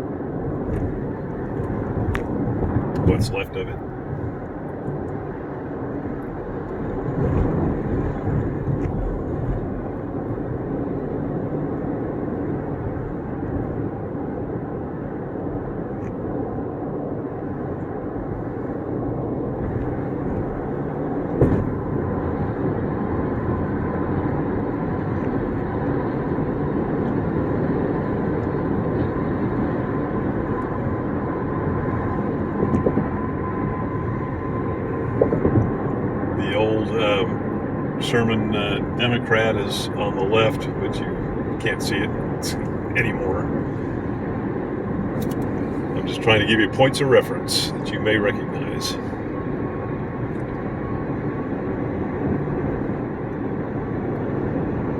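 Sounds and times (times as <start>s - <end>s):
car road and tyre noise: 0.0s - 54.9s
thump: 21.4s - 21.7s.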